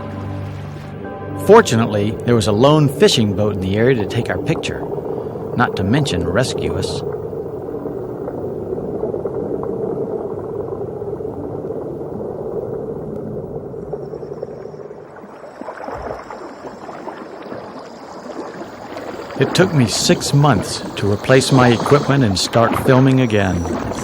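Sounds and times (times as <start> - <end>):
boat engine drone: 0.0 - 7.3, 18.0 - 24.0
hissing water noise: 0.0 - 24.0.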